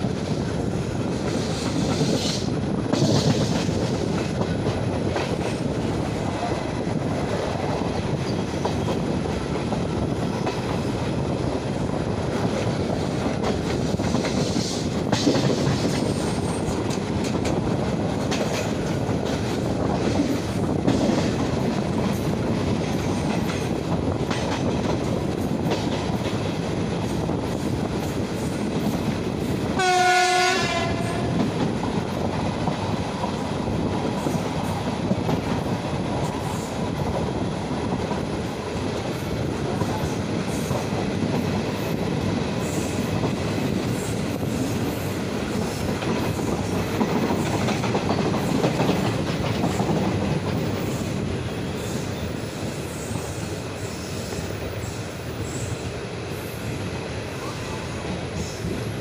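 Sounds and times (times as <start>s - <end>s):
clickety-clack over track: 0.0s - 59.0s
train wheels rumbling on rail: 0.0s - 59.0s
train horn: 29.8s - 31.4s.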